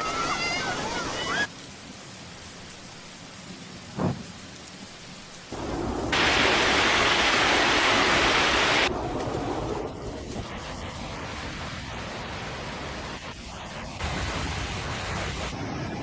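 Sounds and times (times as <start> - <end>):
heavy downpour hissing: 0.0 - 16.0
short thump: 4.0 - 4.3.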